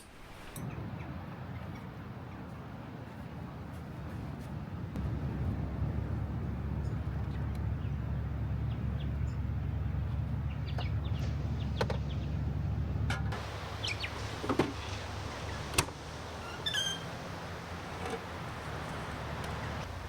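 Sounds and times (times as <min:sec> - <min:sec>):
low rumble: 0:04.9 - 0:14.2.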